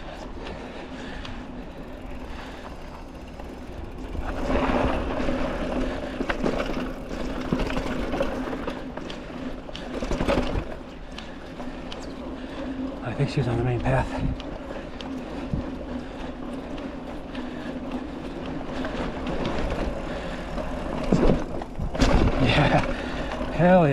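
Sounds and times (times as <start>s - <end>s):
bike rattling over ground: 0.0s - 23.9s
bike tires rolling on dirt: 0.0s - 23.9s.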